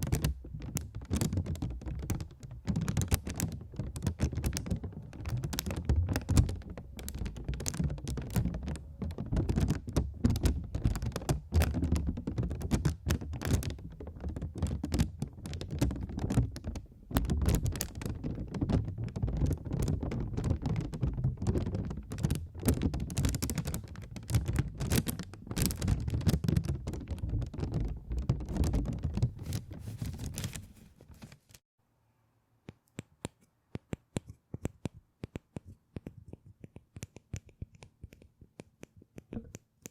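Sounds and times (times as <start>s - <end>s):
fast typing on a keyboard: 0.0s - 30.7s.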